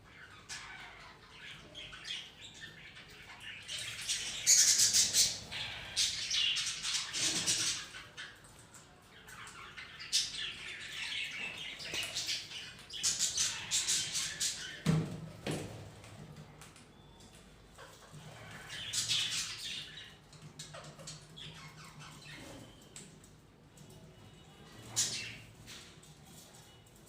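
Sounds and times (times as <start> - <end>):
parrots squawking and chattering: 0.0 - 14.8, 17.7 - 22.9.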